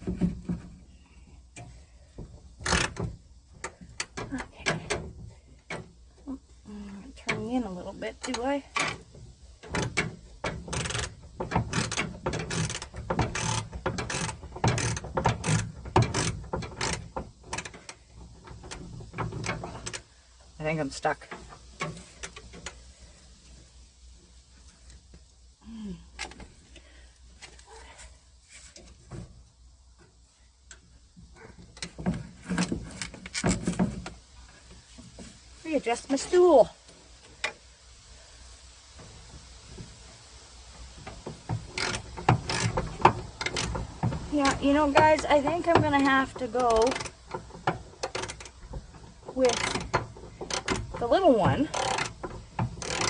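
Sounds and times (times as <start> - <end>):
ratchet clicking: 2.6 - 5.0, 8.2 - 20.1, 41.0 - 53.0
metal knocks and scraping: 7.2 - 22.8, 30.7 - 36.5, 40.9 - 53.0.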